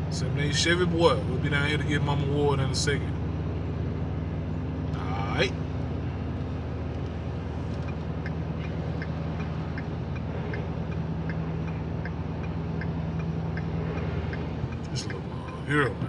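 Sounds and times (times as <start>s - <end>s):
diesel pickup engine drone: 0.0s - 16.0s
light regular ticking: 5.8s - 16.0s.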